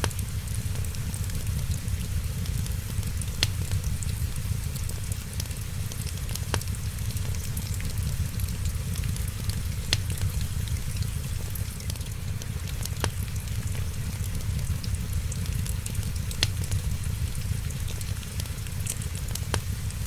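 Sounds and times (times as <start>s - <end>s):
steady low rumble: 0.0s - 20.0s
wood fire crackling: 0.0s - 20.0s
sharp pops: 9.5s - 10.8s.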